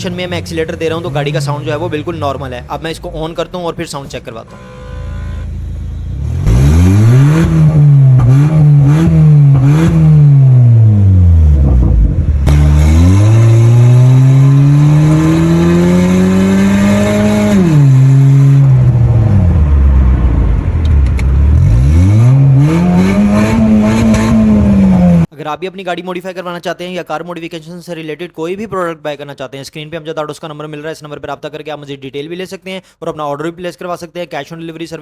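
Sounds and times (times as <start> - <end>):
car engine revving loudly: 6.1 - 25.3.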